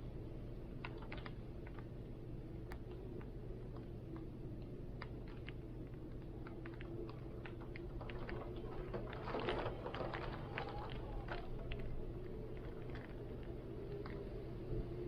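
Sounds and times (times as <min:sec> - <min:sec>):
wind rumble: 0:00.0 - 0:15.0
rain: 0:00.3 - 0:15.0.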